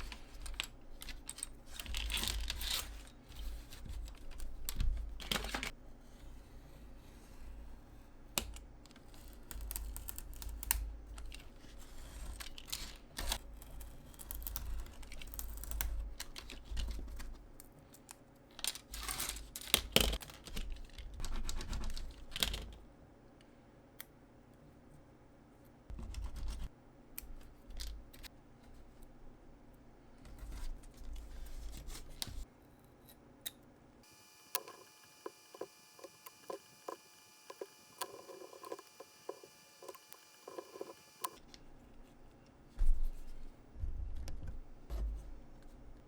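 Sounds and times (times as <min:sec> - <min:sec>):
light clicks and taps of craft work: 0:08.3 - 0:11.5.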